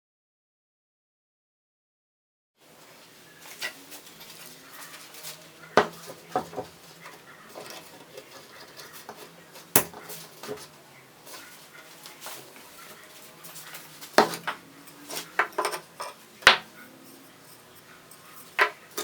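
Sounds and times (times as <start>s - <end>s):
hard objects clattering: 3.6s - 10.8s, 13.5s - 19.0s.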